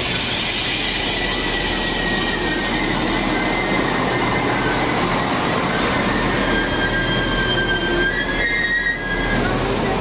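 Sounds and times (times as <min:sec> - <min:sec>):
diesel railcar running: 0:00.0 - 0:10.0
high-pitched wheel squeal: 0:00.0 - 0:10.0.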